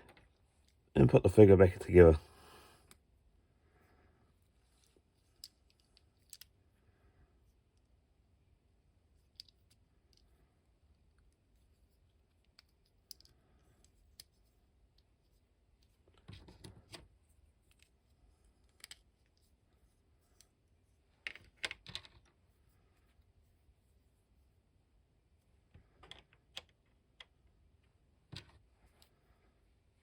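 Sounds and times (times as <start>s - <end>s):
plastic parts clicking: 4.8s - 6.5s, 12.4s - 14.3s.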